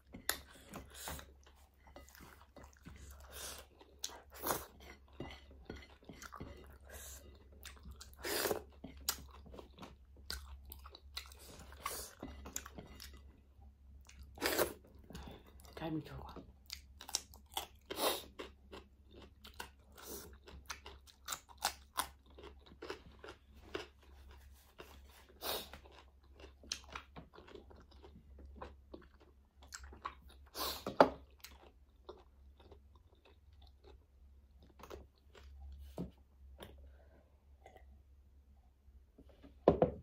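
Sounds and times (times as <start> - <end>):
crunchy chewing of cucumber: 16.6 - 35.9.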